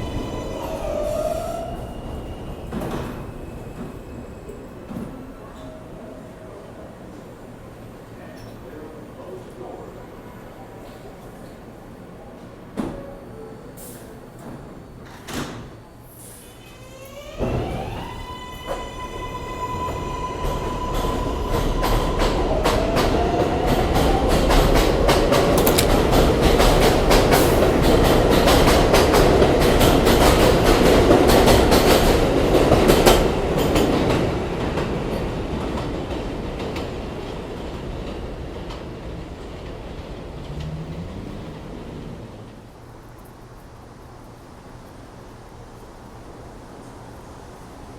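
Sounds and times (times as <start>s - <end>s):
train wheels clacking over rail joints: 24.0s - 34.2s
train motors whining: 25.2s - 28.2s.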